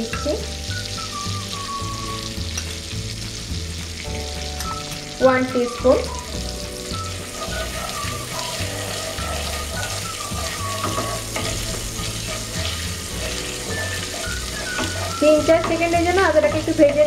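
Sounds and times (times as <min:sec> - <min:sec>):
spices sizzling in hot oil: 0:00.0 - 0:17.0
wooden spatula stirring in pan: 0:06.3 - 0:17.0.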